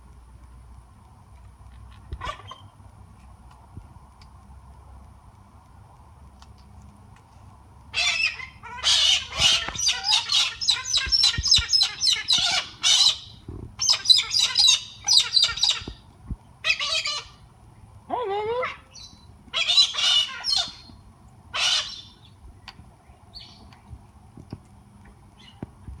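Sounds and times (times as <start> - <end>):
parrots squawking and chirping: 2.2 - 2.6, 7.9 - 16.0, 16.6 - 17.4, 18.2 - 20.9, 21.5 - 22.3.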